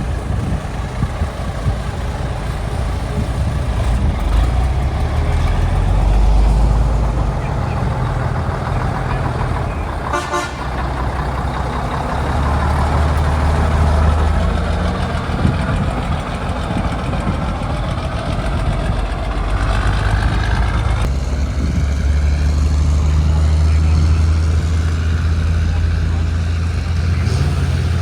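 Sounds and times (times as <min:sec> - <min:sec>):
heavy truck engine rumbling: 0:00.0 - 0:28.0
short horn toot: 0:10.1 - 0:10.8.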